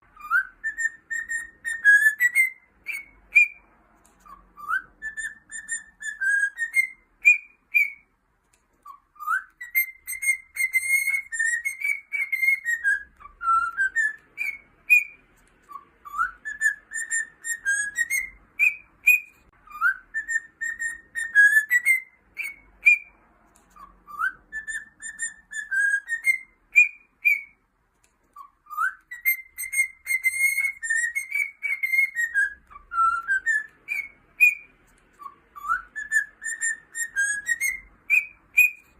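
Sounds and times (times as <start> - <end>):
cockatiel whistling a tune: 0.1 - 8.2, 8.8 - 27.7, 28.3 - 38.9.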